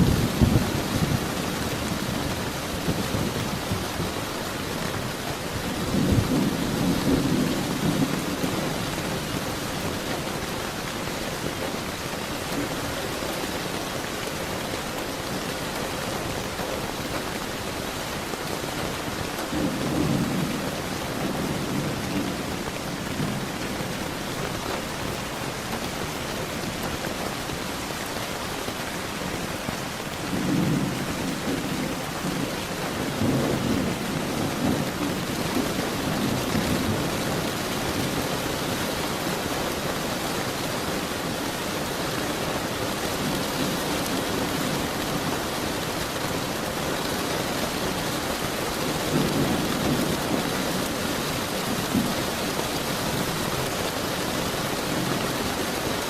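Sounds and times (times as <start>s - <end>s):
thunder rumbling: 0.0s - 10.7s, 19.3s - 28.1s, 28.8s - 38.5s
heavy rain hissing: 0.0s - 56.0s.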